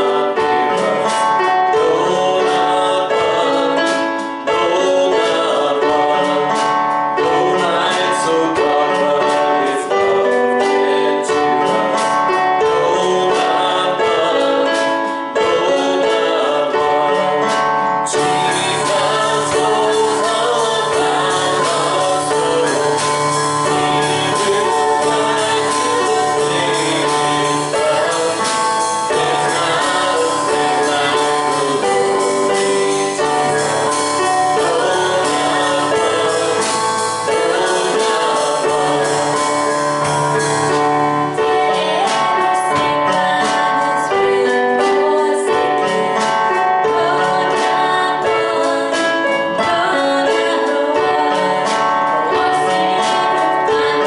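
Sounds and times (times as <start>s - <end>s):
instrumental accompaniment: 0.0s - 54.0s
people singing gospel song: 0.0s - 54.0s
woman singing: 41.4s - 54.0s.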